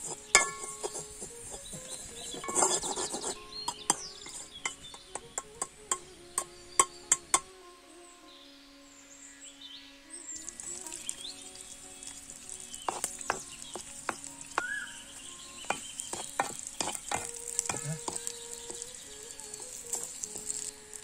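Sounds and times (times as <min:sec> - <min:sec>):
wooden spoon stirring: 0:00.0 - 0:06.9, 0:10.5 - 0:21.0
garlic frying in hot oil: 0:00.0 - 0:07.5, 0:10.3 - 0:21.0
oil crackles and pops: 0:10.4 - 0:21.0.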